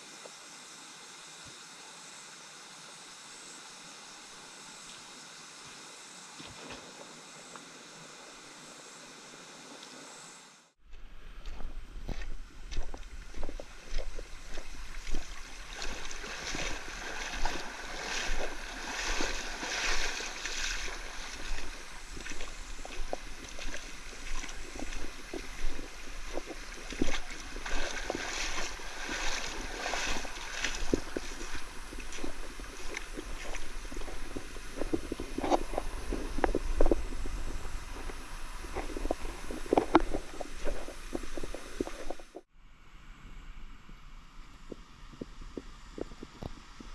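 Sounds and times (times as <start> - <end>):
wind buffeting microphone: 11.0 - 42.4
stream water rushing and splashing: 11.4 - 42.5.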